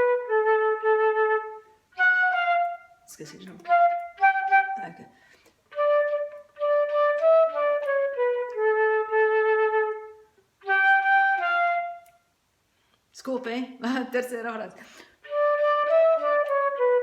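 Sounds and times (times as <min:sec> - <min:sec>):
recorder melody: 0:00.0 - 0:12.3, 0:15.2 - 0:17.0.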